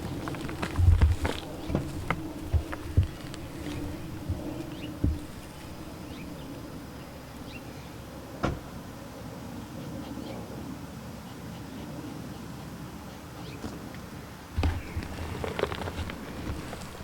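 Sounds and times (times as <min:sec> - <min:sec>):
low steady rumble: 0:00.0 - 0:09.0.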